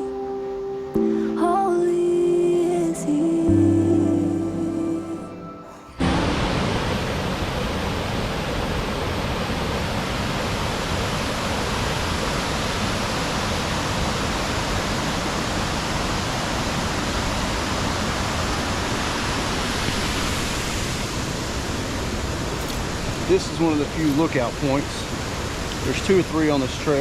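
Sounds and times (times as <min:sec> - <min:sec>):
river flowing over rocks: 0:00.0 - 0:27.0.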